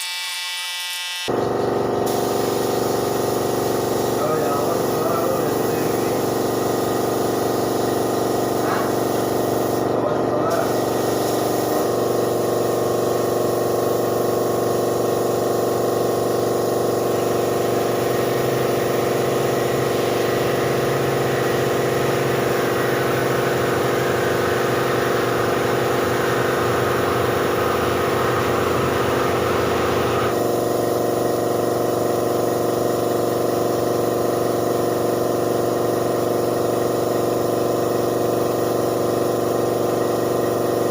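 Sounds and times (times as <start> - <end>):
air compressor running: 0.0 - 40.9
spray gun hissing: 1.3 - 40.9.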